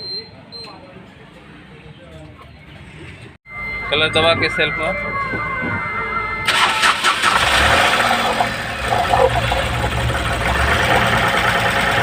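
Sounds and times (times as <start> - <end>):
diesel engine starting and running: 4.4 - 12.0.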